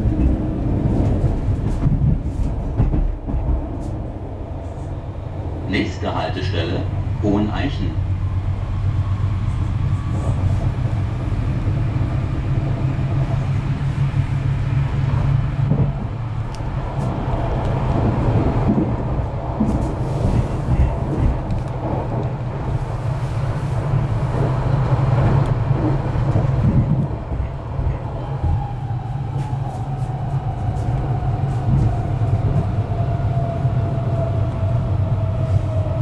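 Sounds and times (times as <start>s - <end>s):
train wheels rumbling on rail: 0.0s - 36.0s.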